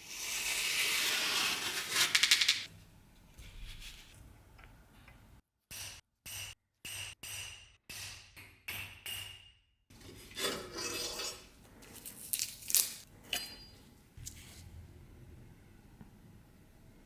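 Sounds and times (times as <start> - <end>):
metal parts scraping and rubbing: 10.0 - 14.6.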